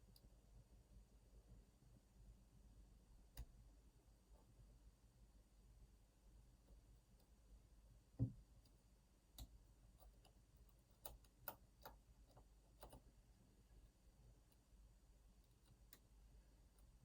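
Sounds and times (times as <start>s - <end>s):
soft low thump: 8.2s - 8.4s.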